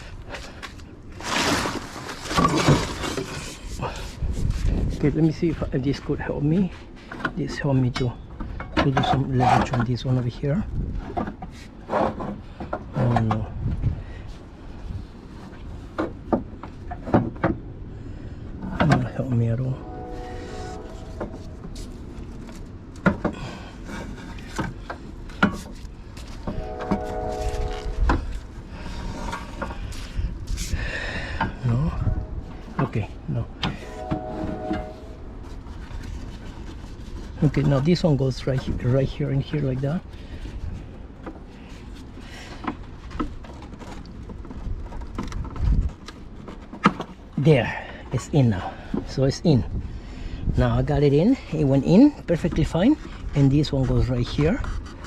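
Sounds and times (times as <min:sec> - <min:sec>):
rubbing and rustling: 0:00.0 - 0:06.0, 0:20.1 - 0:30.8, 0:33.8 - 0:47.3
steady drone: 0:17.9 - 0:22.6.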